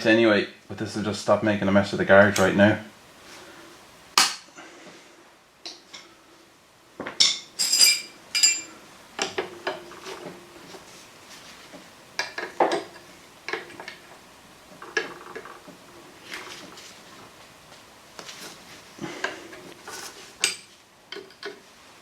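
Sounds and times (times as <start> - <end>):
metal tools clinking and knocking: 7.2 - 8.8.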